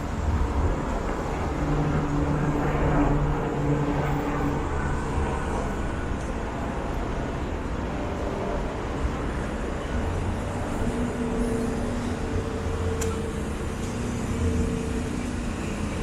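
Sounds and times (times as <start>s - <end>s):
passing traffic rumble: 0.0s - 16.0s
vehicle engine hum: 0.0s - 16.0s.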